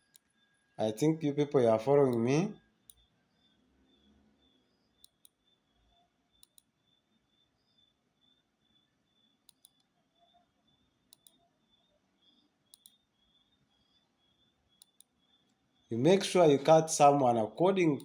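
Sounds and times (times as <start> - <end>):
computer mouse double-clicking: 6.4 - 6.6, 9.5 - 9.8, 11.1 - 11.4, 12.7 - 13.0.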